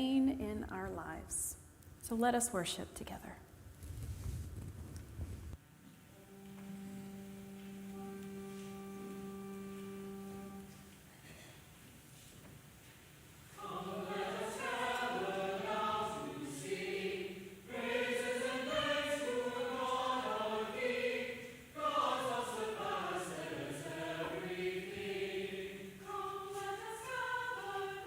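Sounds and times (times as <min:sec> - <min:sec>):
church choir singing: 0:06.2 - 0:10.9, 0:13.5 - 0:28.0.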